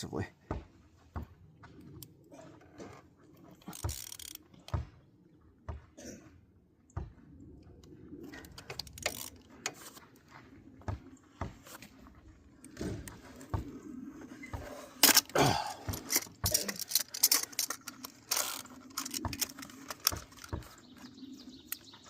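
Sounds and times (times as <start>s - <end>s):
metal tools clinking and scraping: 15.0s - 20.7s.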